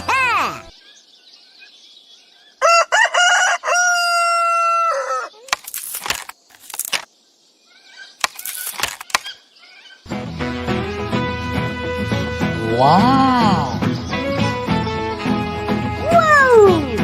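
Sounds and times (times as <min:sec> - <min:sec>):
rooster crowing: 0:02.6 - 0:05.4.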